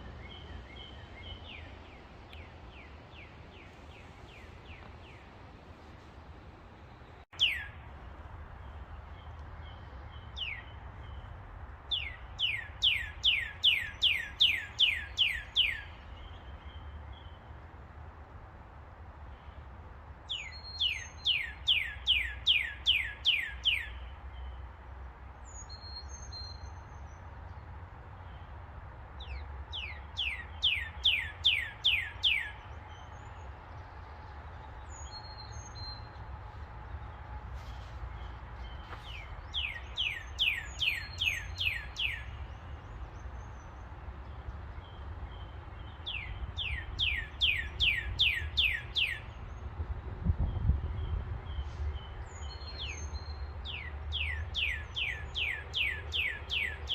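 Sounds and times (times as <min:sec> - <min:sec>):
songbird whistling: 0:38.9 - 0:42.4.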